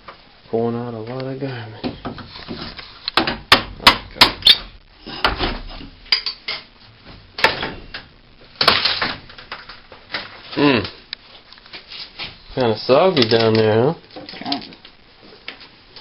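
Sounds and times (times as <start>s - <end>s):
debris rattling: 7.4s - 10.8s.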